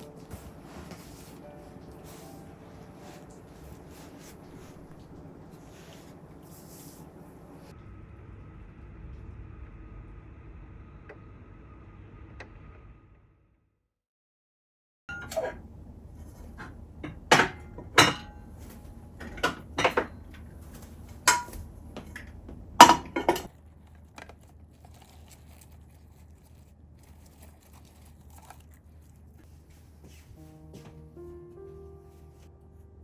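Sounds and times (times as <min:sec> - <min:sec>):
low steady room hum: 0:00.0 - 0:13.0, 0:15.1 - 0:33.0
dishes and utensils clinking: 0:15.1 - 0:23.5.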